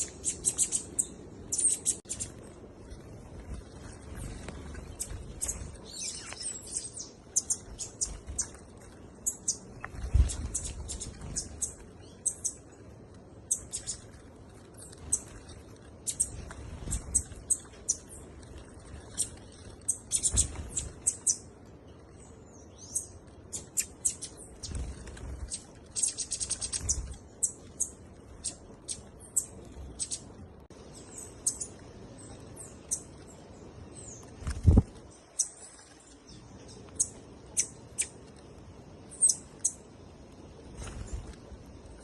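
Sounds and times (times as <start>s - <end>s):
bird trill: 0.0s - 2.3s, 9.2s - 12.6s, 30.9s - 31.8s
small birds chirping: 0.0s - 42.0s.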